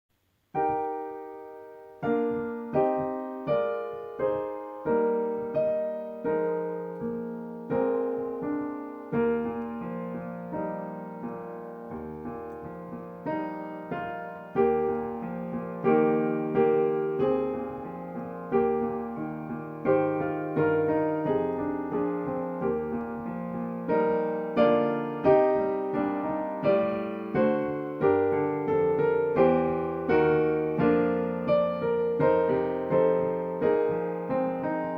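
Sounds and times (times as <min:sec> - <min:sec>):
slow solo piano chords: 0:00.5 - 0:34.9.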